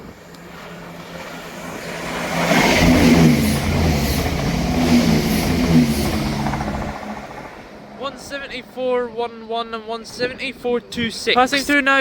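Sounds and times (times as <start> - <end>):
diesel train passing at speed: 0.0 - 9.4.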